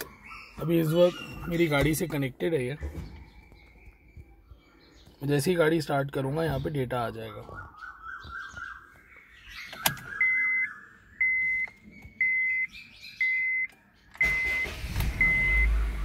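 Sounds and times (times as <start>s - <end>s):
car warning chime beeping: 9.8s - 16.0s
car engine cranking and running: 14.1s - 16.0s.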